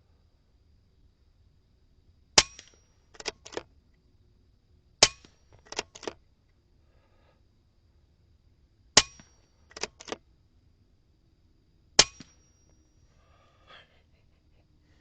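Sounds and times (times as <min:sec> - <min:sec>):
quiet sharp clicks: 0:09.7 - 0:10.2
air rifle shot crack: 0:12.0 - 0:12.4.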